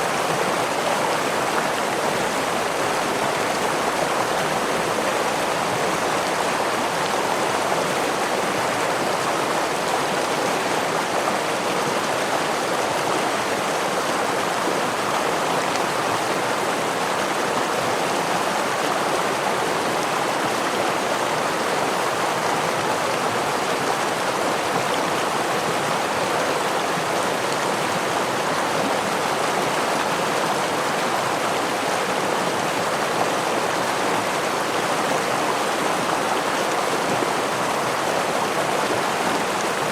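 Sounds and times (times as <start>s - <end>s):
stream flowing over waterfall: 0.0s - 39.9s.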